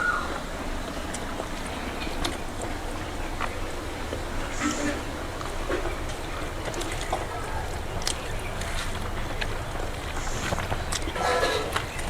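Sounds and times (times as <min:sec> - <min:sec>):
eating and chewing clicks: 0:07.9 - 0:12.0.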